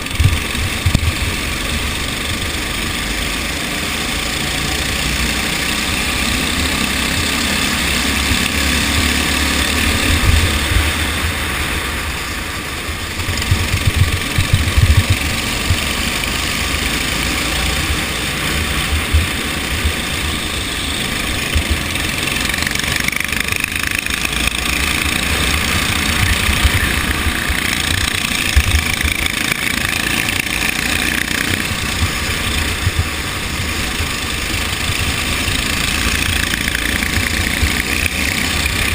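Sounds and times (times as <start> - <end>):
go-kart engine running: 0.0 - 38.9
low thumps: 13.2 - 15.9.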